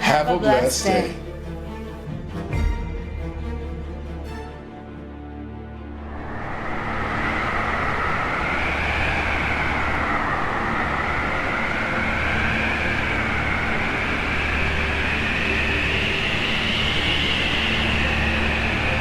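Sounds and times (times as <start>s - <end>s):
music: 0.0s - 19.0s
howling wind: 5.6s - 19.0s.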